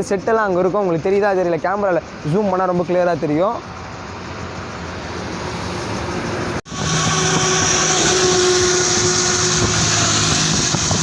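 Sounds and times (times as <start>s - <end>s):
moving vehicle road noise: 0.0s - 11.0s
steady tones: 3.8s - 11.0s.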